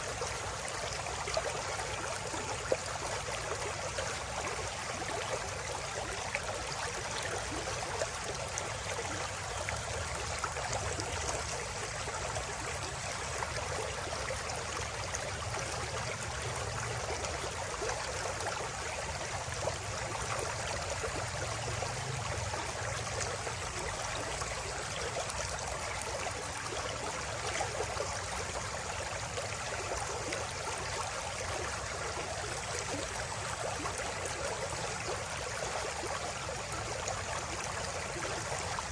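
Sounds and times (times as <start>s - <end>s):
river water over rocks: 0.0s - 38.9s.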